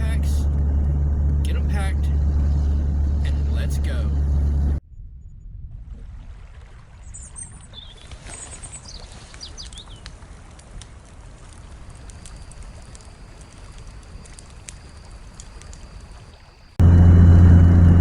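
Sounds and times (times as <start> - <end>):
steady low rumble: 0.0 - 6.5, 16.8 - 18.0.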